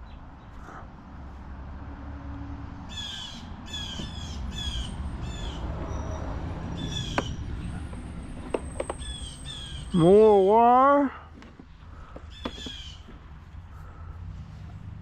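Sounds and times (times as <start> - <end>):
bird calling: 2.9 - 14.1.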